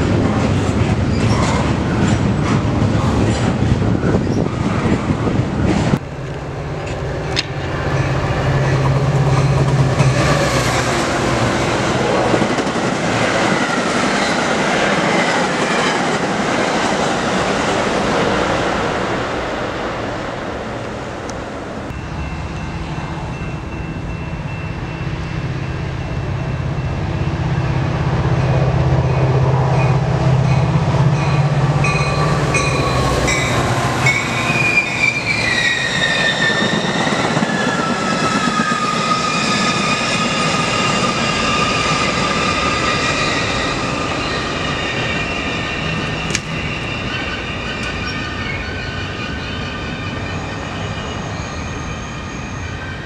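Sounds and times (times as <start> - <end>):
train deep hum: 0.0 - 53.0
wheel flanges squealing: 31.2 - 53.0.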